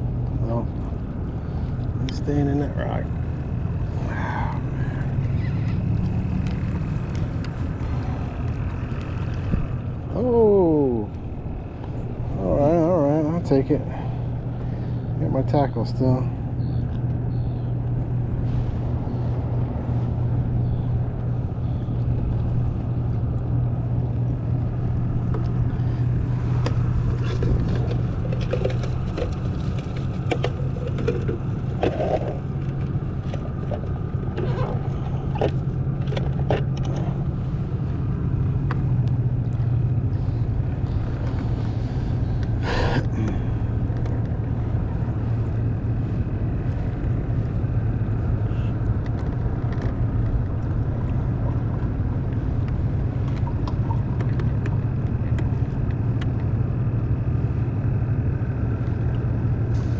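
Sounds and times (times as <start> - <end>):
boat motor humming: 0.0 - 59.9
small clicks and knocks: 26.6 - 34.5.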